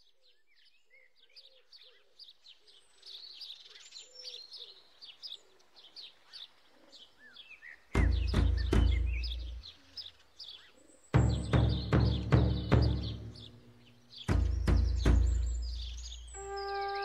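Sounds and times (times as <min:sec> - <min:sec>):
birds chirping and singing: 0:00.0 - 0:17.0
low warbling bird call: 0:11.2 - 0:17.0.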